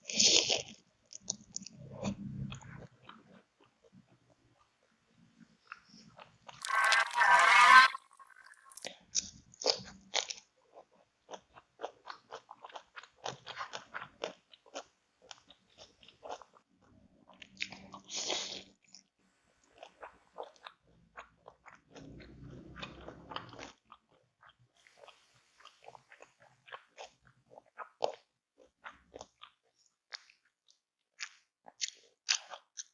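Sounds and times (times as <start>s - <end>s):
crunchy eating close up: 9.7s - 16.6s, 19.6s - 32.9s
soft chewing: 9.7s - 18.7s, 19.6s - 32.9s.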